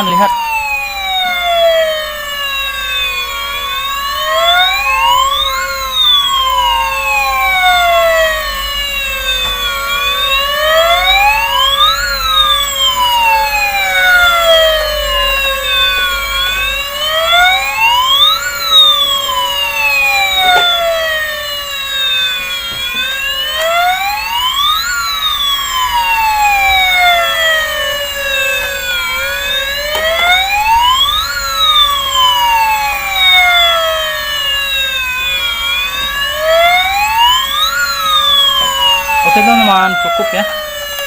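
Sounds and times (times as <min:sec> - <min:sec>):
toy fire truck siren wailing: 0:00.0 - 0:41.0
steady electronic tone: 0:01.6 - 0:26.6.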